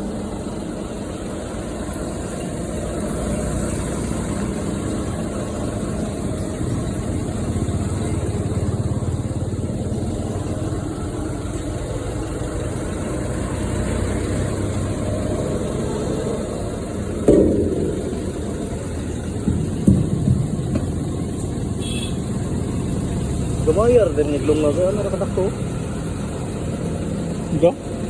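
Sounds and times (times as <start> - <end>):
truck diesel engine running: 0.0 - 28.0.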